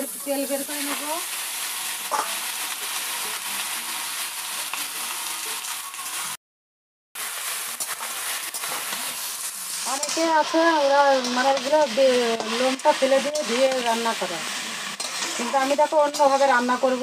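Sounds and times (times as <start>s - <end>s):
chicken skin sizzling: 0.0s - 6.4s, 7.2s - 17.0s
metal spatula stirring: 7.4s - 17.0s.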